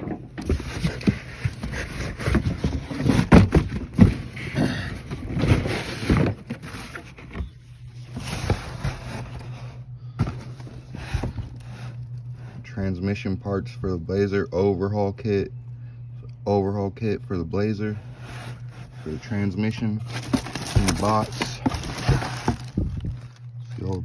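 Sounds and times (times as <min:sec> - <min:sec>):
steady low hum: 0:00.0 - 0:24.0
cardboard box being opened: 0:00.4 - 0:12.0, 0:18.0 - 0:23.4.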